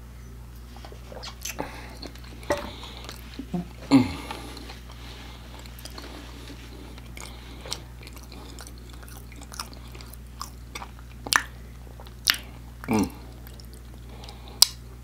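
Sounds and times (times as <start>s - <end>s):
steady low hum: 0.0s - 15.0s
person chewing food: 1.0s - 14.8s
wet mouth clicks: 12.2s - 14.8s.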